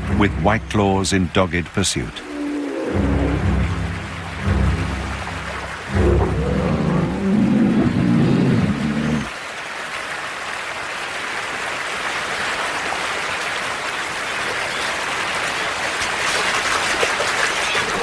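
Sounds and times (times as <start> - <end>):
low music tones: 0.0 - 9.3
creek water rushing: 0.0 - 18.0
bear wading through water: 2.2 - 18.0.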